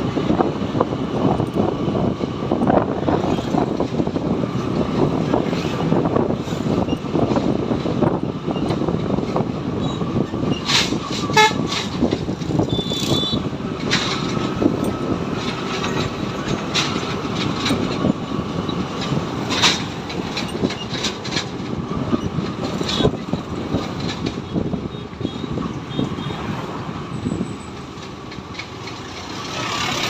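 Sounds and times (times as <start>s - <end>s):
sharp rattles and knocks: 0.1s - 26.2s, 26.9s - 30.0s
horn toot: 11.2s - 11.8s.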